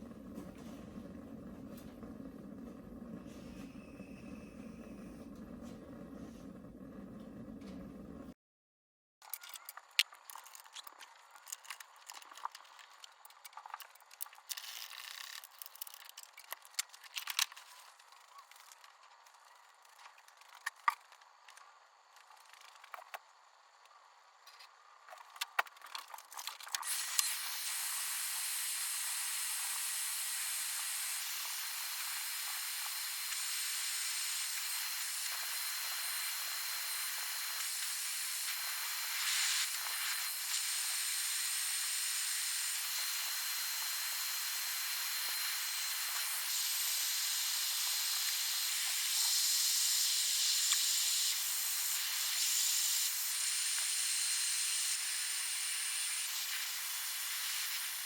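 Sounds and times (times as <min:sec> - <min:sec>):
spray paint hissing: 0:26.8 - 0:43.8, 0:44.4 - 0:58.0.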